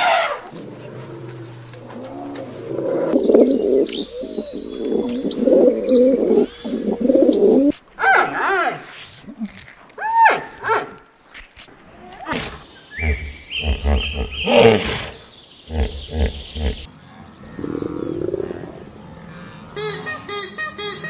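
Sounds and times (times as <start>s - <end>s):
big cat roaring and growling: 0.0s - 4.3s, 12.3s - 19.8s
repeated pitched animal calling: 19.3s - 21.0s.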